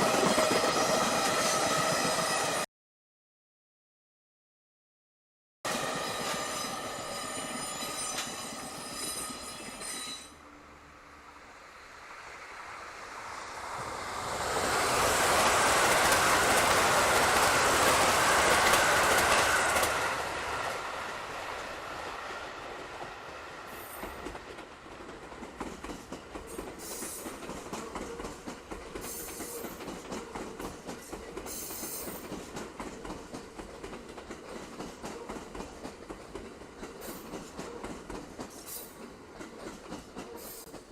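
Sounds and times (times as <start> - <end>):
train wheels rushing on rail: 0.0 - 2.6, 5.7 - 40.9
train whine: 0.0 - 2.7, 5.7 - 40.9
wheels clickety-clack over joints: 15.3 - 20.0, 23.8 - 40.9.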